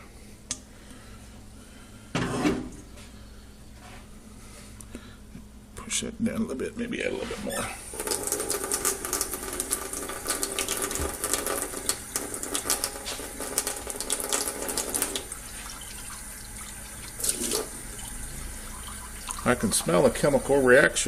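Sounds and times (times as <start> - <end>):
water pouring into glass bowl: 7.9 - 20.6.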